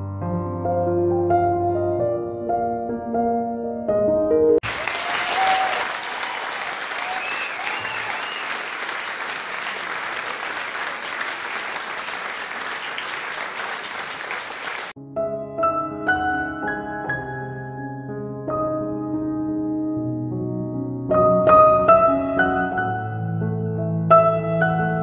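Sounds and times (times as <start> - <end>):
crowd applause: 4.6 - 15.0
crowd cheering: 4.6 - 15.0.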